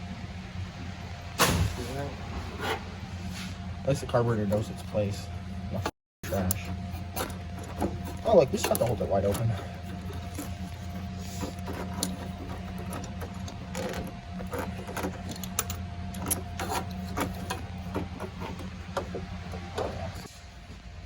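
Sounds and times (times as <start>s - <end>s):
machine low hum: 0.0s - 21.0s.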